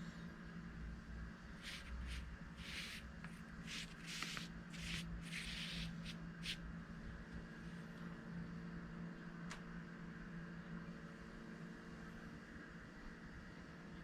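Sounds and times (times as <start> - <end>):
steady low hum: 0.0 - 14.0
paintbrush stroking across paper: 1.6 - 6.6.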